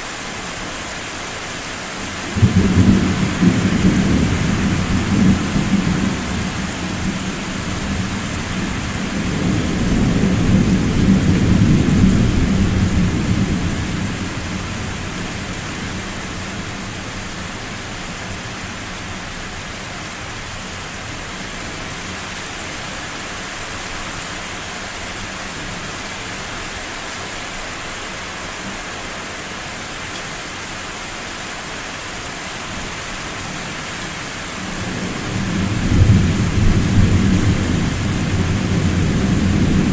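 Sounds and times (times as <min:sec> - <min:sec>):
steady rain hiss: 0:00.0 - 0:39.9
deep rolling thunder: 0:02.3 - 0:16.1, 0:34.6 - 0:39.9.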